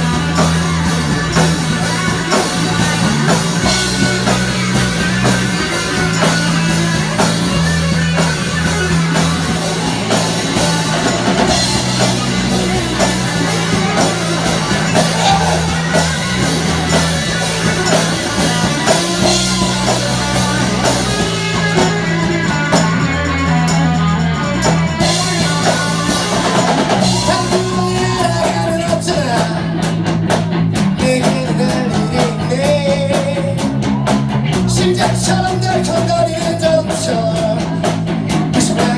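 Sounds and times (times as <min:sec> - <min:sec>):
bass guitar: 0:00.0 - 0:38.9
drum kit: 0:00.0 - 0:38.9
electric guitar: 0:00.0 - 0:38.9
person singing: 0:12.5 - 0:16.2.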